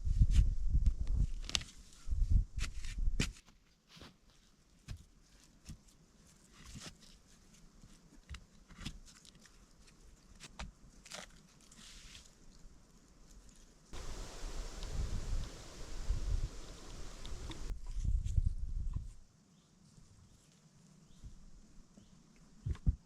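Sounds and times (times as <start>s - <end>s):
dry wood crackling: 13.3s - 17.7s.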